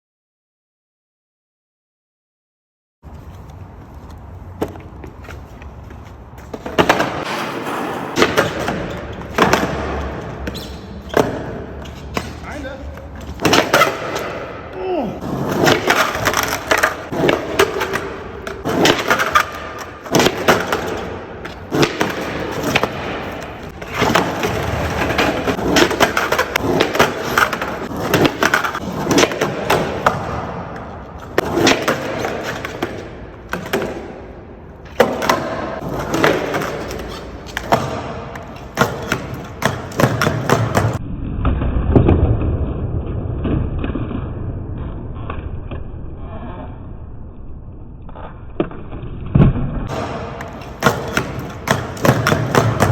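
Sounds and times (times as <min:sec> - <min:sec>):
skateboard wheels rolling: 0:03.0 - 0:47.3, 0:47.9 - 0:52.9
skateboard deck clacking on ground: 0:49.9 - 0:52.9.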